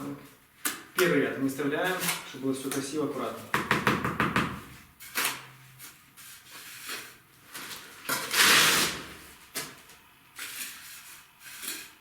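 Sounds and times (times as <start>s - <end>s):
trowel scraping mortar: 10.4s - 12.0s.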